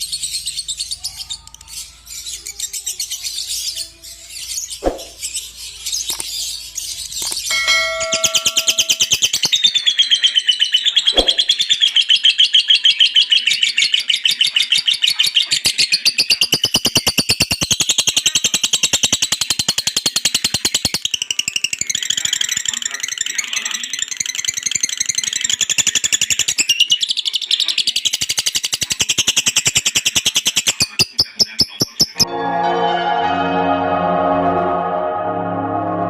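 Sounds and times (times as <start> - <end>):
bird chattering rattle: 28.1 - 32.2.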